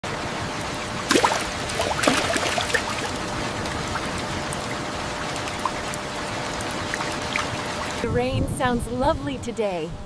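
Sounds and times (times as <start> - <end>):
drips and splashes: 0.9 - 8.0.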